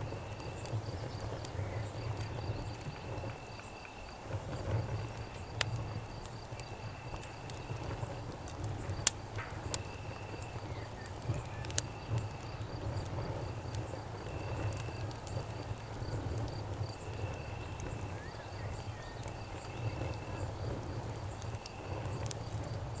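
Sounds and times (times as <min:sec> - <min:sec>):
campfire popping: 0:00.0 - 0:23.0
crickets and cicadas droning: 0:00.0 - 0:23.0
short insect chirp: 0:09.2 - 0:12.7, 0:13.5 - 0:22.9.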